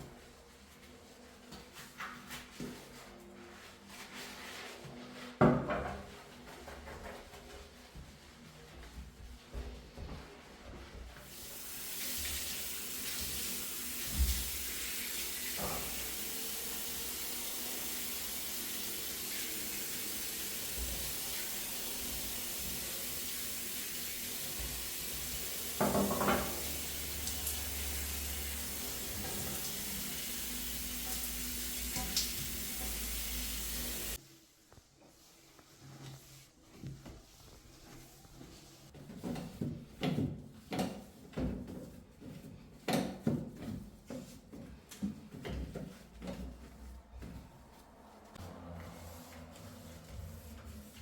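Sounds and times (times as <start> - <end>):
tap water running into sink: 11.2 - 34.2
objects knocking in sink: 25.8 - 26.7.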